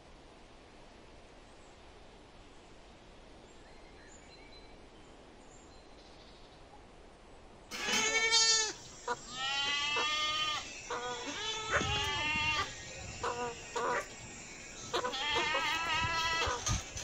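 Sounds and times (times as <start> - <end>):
goats bleating: 7.7 - 14.2, 14.8 - 17.0.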